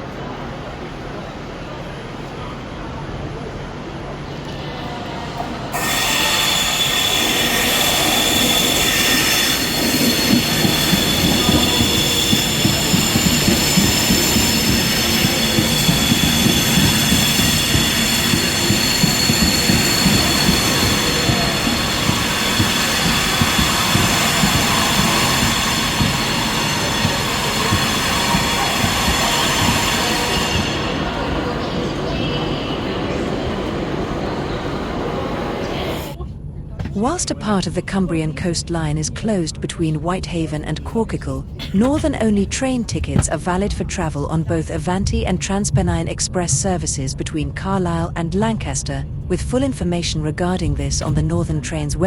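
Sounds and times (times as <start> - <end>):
train rumbling on rails: 0.0 - 52.0
high-pitched wheel squeal: 5.7 - 34.8.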